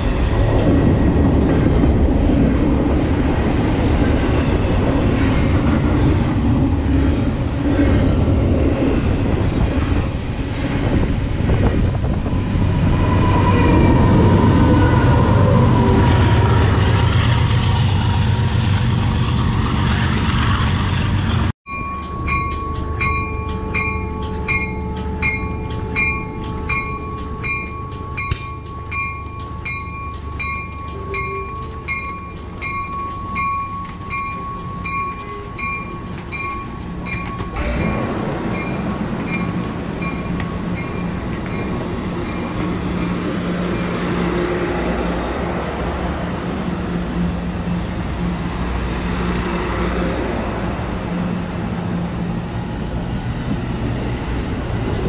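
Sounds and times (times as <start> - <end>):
train wheels rumbling on rails: 0.0 - 55.0
bell ringing: 21.7 - 43.2.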